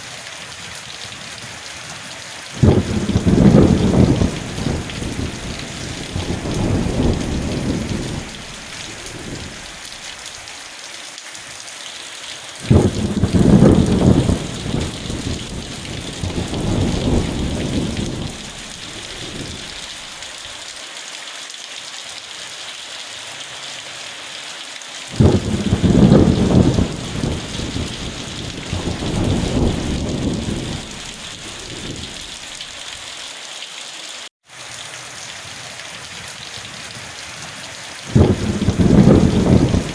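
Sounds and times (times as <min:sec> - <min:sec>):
steady rain: 0:00.0 - 0:39.9
rolling thunder: 0:02.6 - 0:09.8, 0:12.7 - 0:20.0, 0:25.2 - 0:32.5, 0:38.1 - 0:39.9.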